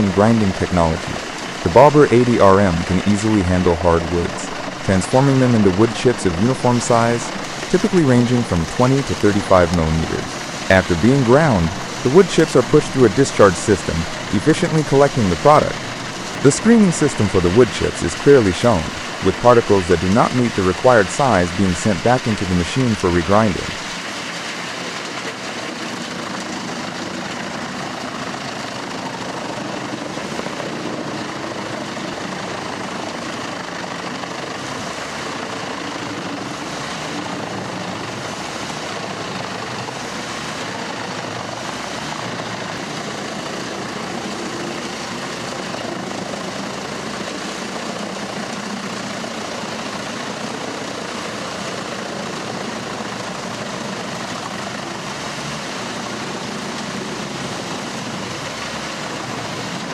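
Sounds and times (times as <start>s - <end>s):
wood grinder machine drone: 0.0s - 24.0s, 30.9s - 51.3s.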